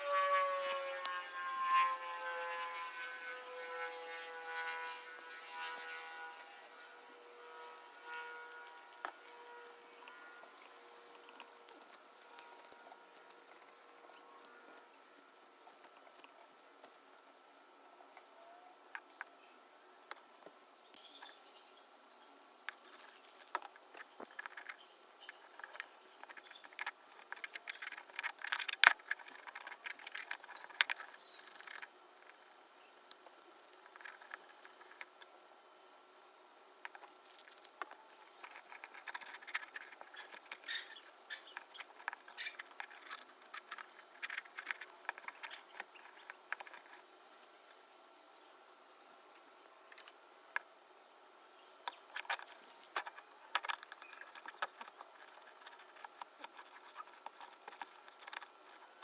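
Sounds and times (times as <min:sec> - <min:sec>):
light clicks and scrapes: 0:20.1 - 0:35.4, 0:36.8 - 0:48.0, 0:49.9 - 0:59.0.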